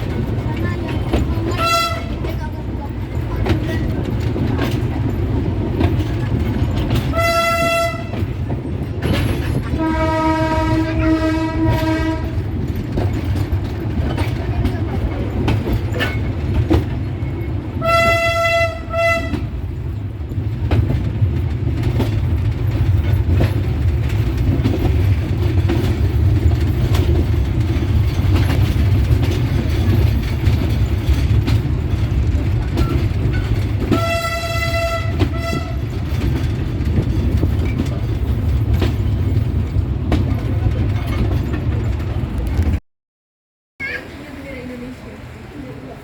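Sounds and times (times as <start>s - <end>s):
train rumbling: 0.0s - 42.8s, 43.8s - 46.0s
train horn blasts: 1.5s - 2.3s, 7.0s - 8.4s, 9.7s - 12.5s, 17.8s - 19.6s, 33.9s - 36.0s.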